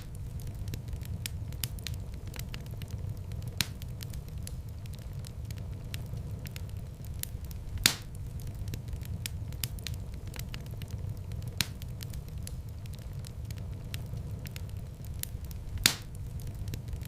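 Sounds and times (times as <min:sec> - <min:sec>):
wood fire crackling: 0:00.0 - 0:17.0
loud sharp pop: 0:07.8 - 0:08.1, 0:15.8 - 0:16.1.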